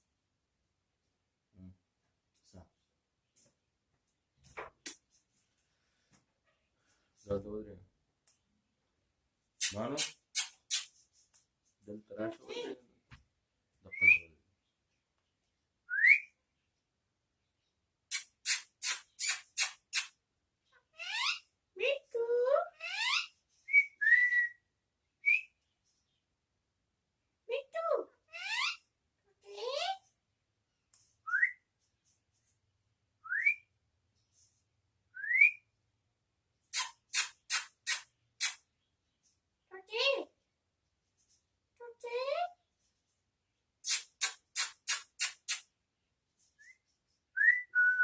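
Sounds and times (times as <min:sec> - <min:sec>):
shrill parakeet calls: 0:18.1 - 0:20.1, 0:20.9 - 0:21.4, 0:22.7 - 0:23.3, 0:28.3 - 0:28.8, 0:36.7 - 0:38.6, 0:43.8 - 0:45.6.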